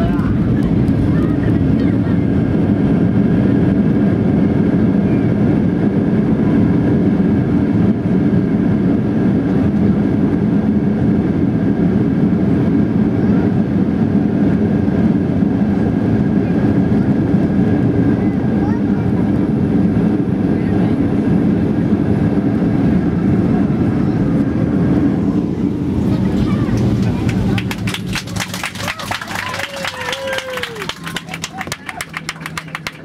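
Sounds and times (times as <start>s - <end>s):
jet engine hum: 0.0s - 33.0s.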